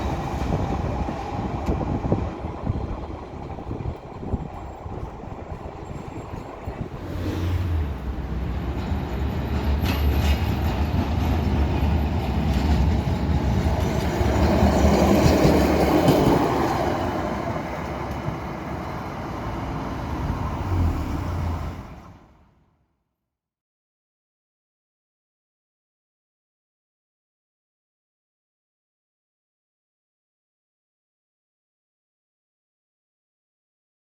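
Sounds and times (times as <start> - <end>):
tram running past: 0.0 - 22.5.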